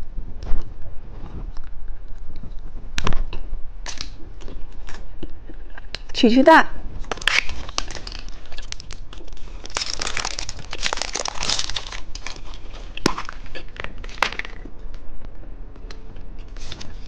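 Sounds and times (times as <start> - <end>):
plastic packaging crinkling: 7.0 - 14.7.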